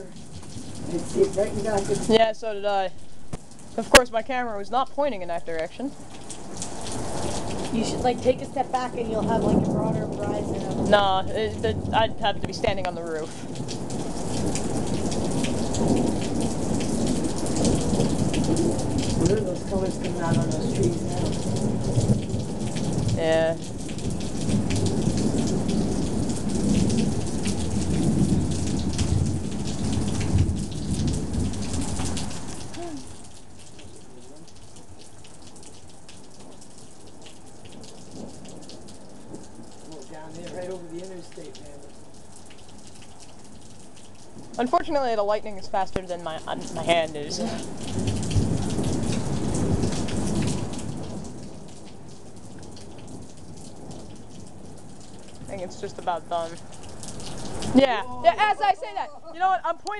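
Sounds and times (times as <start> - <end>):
rolling thunder: 0.0 - 2.8, 6.4 - 32.8, 46.3 - 57.8
steady rain: 0.0 - 59.9.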